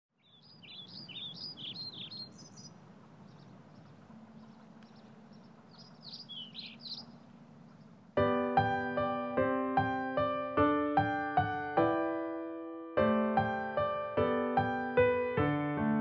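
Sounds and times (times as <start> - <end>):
small birds chirping: 0.1 - 8.2.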